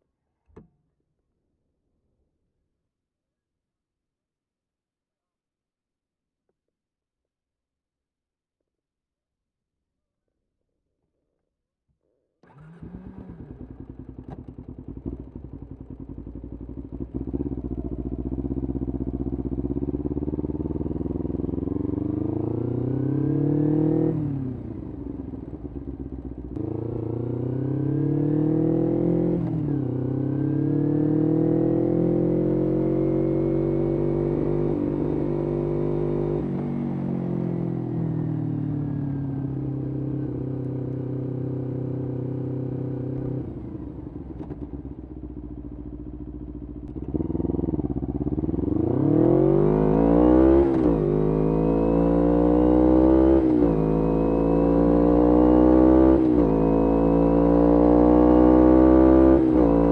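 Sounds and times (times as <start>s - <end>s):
motorcycle engine accelerating: 12.4s - 59.9s.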